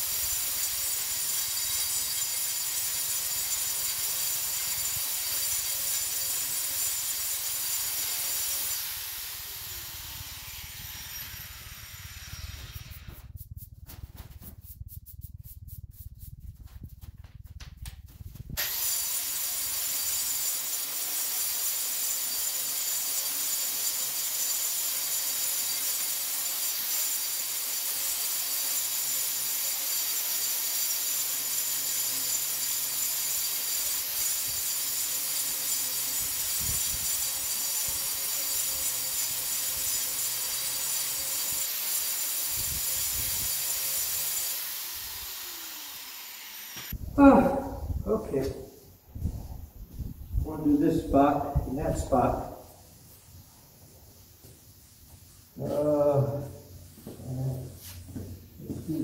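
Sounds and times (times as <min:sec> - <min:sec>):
power tool motor whining: 0:00.8 - 0:13.1.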